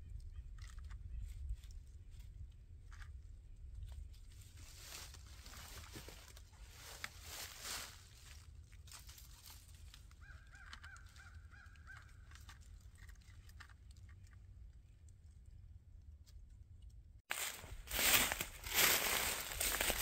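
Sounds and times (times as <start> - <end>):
rustle: 3.9 - 11.3, 17.3 - 20.0.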